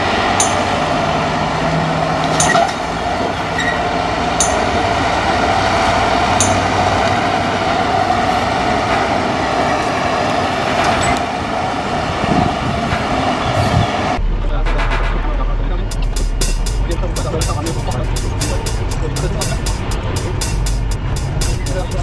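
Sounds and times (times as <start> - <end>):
truck engine drone: 0.0 - 22.0
sharp click: 0.4 - 1.0, 2.3 - 2.8, 6.4 - 6.8.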